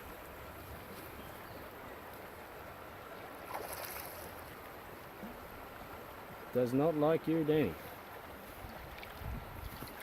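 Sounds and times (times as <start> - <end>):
stream water running over stones: 0.0 - 10.0
water splash: 3.4 - 4.4.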